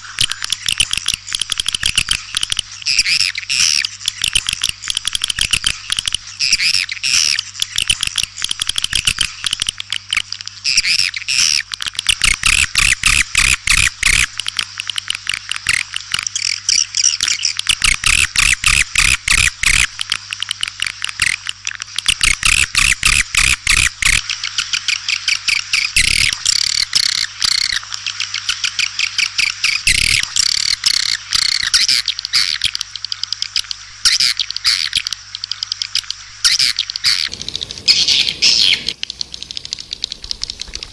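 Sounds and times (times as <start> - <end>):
steady low hum: 22.4 - 40.9
swiftlets twittering: 28.8 - 40.9.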